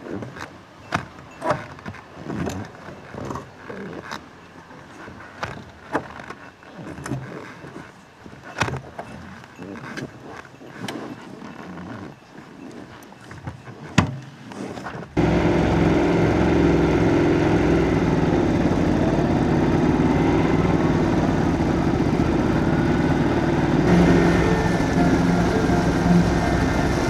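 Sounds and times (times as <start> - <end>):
motorcycle engine running: 15.2 - 27.0.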